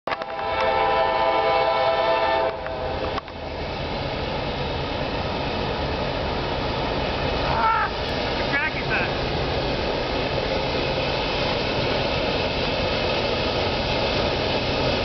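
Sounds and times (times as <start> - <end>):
locomotive air horn chord: 0.1 - 3.1
diesel locomotives rumbling: 0.1 - 15.0.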